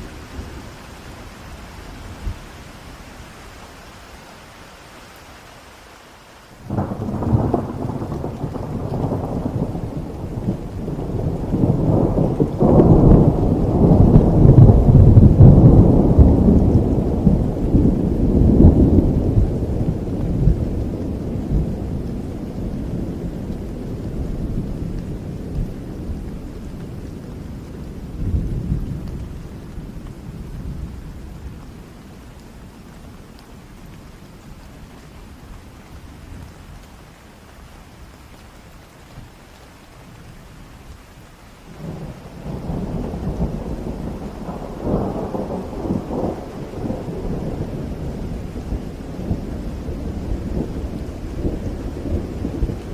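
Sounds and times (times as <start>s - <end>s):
steady rain: 0.0s - 52.9s
thunder rumbling: 6.6s - 32.0s, 41.7s - 52.9s.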